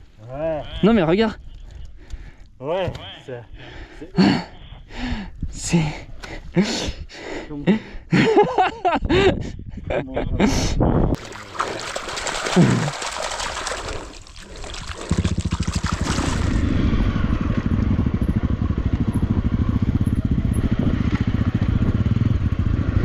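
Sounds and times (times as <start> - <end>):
rough rushing noise: 11.2 - 16.8
motorcycle engine running: 14.6 - 23.0.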